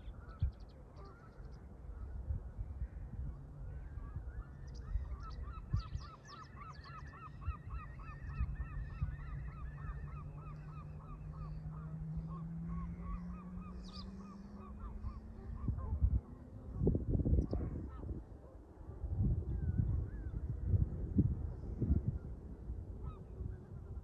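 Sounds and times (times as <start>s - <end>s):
wind rumble: 7.3s - 24.0s.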